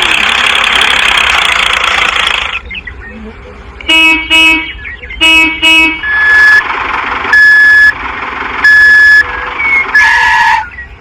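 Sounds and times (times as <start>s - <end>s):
vehicle horn tooting: 3.9s - 6.6s, 9.3s - 10.7s
reversing alarm beeping: 6.0s - 6.6s, 7.3s - 8.0s, 8.6s - 10.3s.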